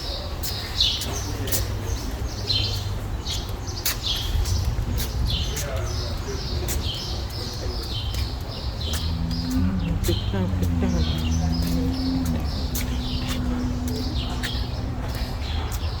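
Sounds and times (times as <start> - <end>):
small birds chirping: 0.0 - 16.0
steady low hum: 8.6 - 16.0.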